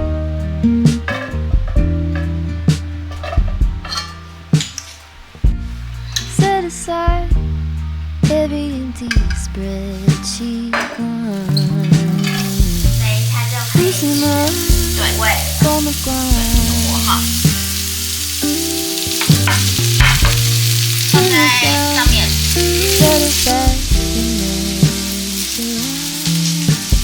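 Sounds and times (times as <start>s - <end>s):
background music: 0.0s - 27.0s
food sizzling in a pan: 11.0s - 27.0s.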